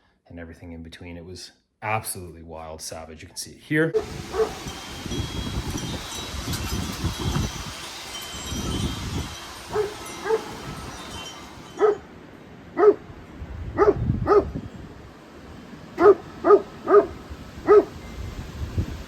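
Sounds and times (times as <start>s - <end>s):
dog barking: 4.0s - 4.8s, 9.7s - 10.6s, 11.8s - 12.1s, 12.8s - 13.0s, 13.8s - 14.6s, 16.0s - 18.0s
wind gusting on microphone: 4.0s - 19.0s.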